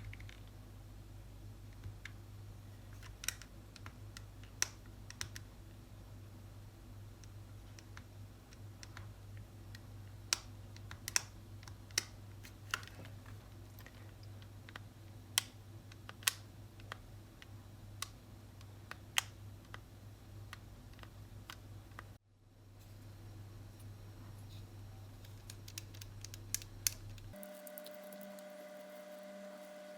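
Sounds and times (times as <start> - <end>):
steady low hum: 0.0 - 29.9
plastic parts clicking: 2.9 - 5.5, 25.2 - 27.3.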